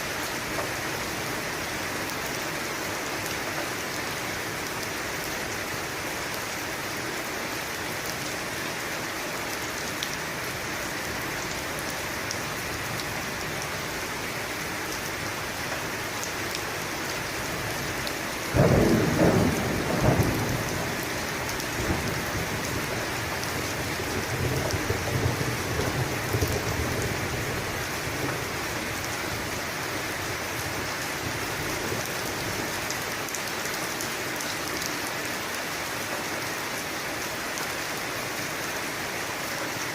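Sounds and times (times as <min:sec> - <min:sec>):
heavy rain falling: 0:00.0 - 0:39.9
thunderclap rumbling: 0:18.6 - 0:23.3.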